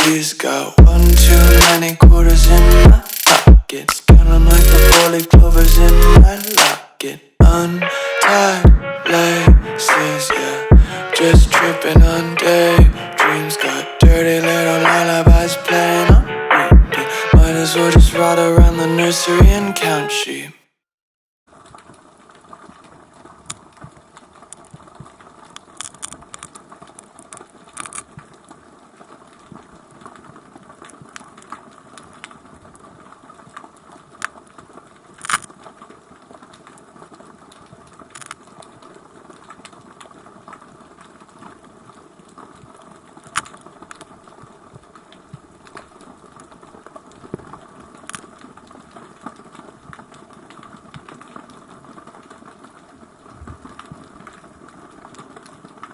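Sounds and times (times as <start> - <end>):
underwater clicks and ticks: 21.5 - 55.9.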